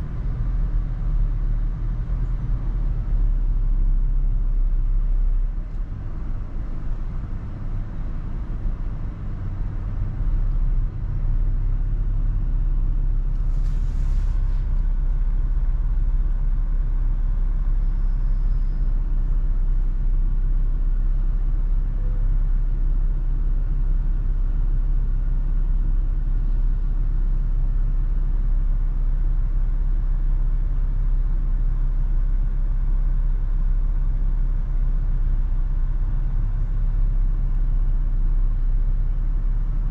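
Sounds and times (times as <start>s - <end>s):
road and wind rumble: 0.0s - 23.6s
brief hiss: 13.4s - 14.8s.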